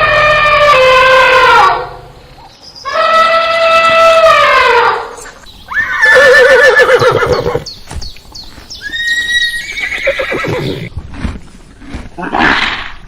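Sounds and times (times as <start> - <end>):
horse whinnying: 5.7 - 7.7, 8.8 - 10.9.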